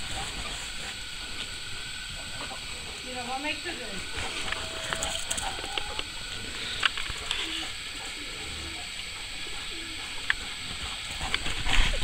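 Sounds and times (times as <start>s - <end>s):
bird cooing: 4.1s - 12.0s.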